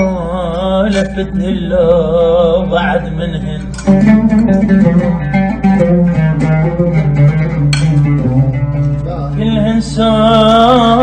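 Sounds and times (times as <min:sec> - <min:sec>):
person singing: 0:00.0 - 0:04.6, 0:09.1 - 0:11.0
oud plucked melody: 0:00.0 - 0:11.0.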